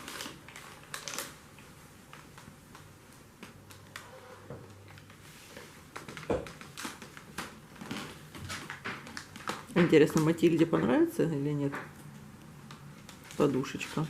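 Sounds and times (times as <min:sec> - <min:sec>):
cat crunching dry treats: 0:00.0 - 0:01.4.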